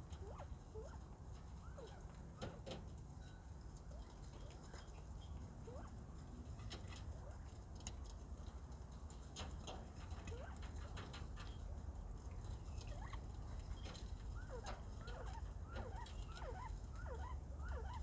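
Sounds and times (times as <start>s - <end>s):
quail soft chirps: 14.4s - 18.0s.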